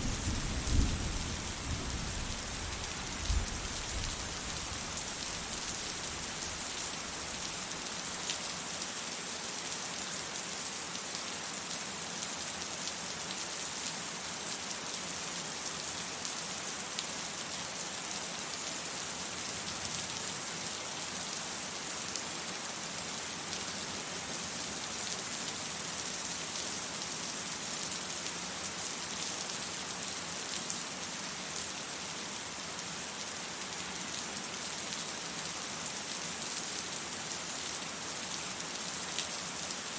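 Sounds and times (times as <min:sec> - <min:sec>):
rain pattering: 0:00.0 - 0:07.3.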